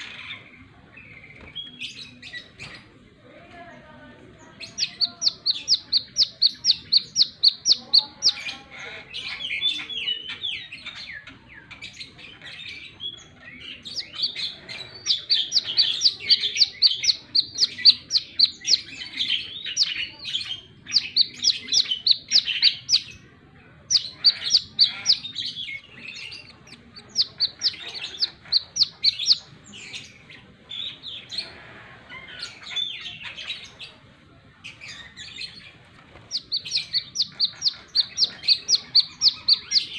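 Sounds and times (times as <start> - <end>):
bird twittering: 4.6 - 11.3, 12.7 - 23.2, 23.9 - 31.5, 34.8 - 39.9.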